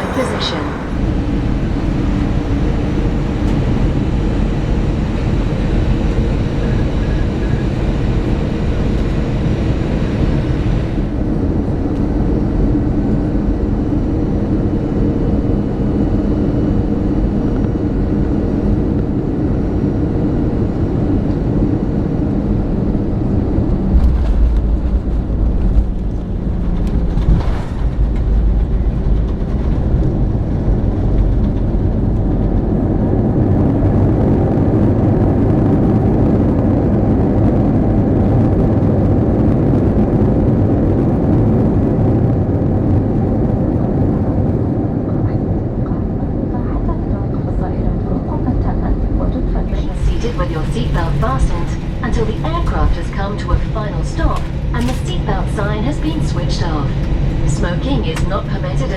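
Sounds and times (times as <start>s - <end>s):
aircraft cabin engine rumble: 0.0s - 58.9s
heavy low rumble: 0.0s - 58.9s.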